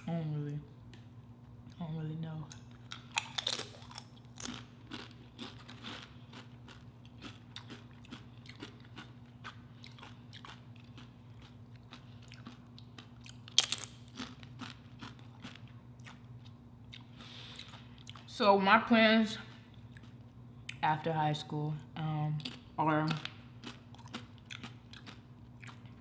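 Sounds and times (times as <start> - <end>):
crunching tortilla chips: 2.8 - 16.3.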